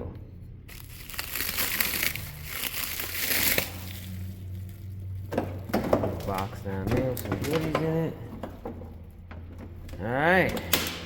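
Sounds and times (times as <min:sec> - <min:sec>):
low hum: 0:00.0 - 0:05.6
packaging crinkling rustle: 0:00.7 - 0:05.3.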